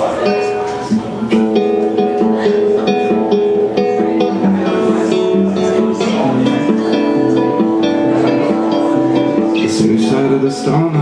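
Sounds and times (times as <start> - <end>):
strummed guitar: 0.0 - 11.0.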